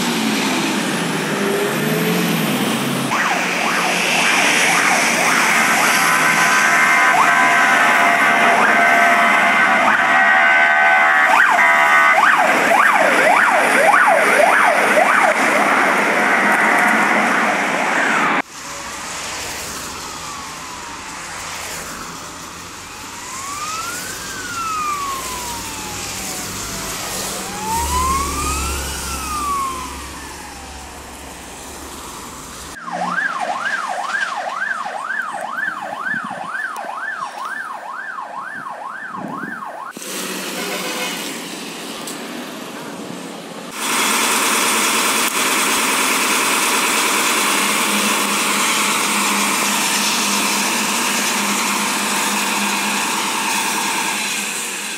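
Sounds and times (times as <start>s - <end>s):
slow wailing siren: 0.0s - 40.0s, 46.2s - 54.9s
truck engine rumble: 0.0s - 54.9s
fast sweeping siren: 0.5s - 40.0s, 47.3s - 54.9s
yelping siren: 1.2s - 18.4s, 19.6s - 40.0s.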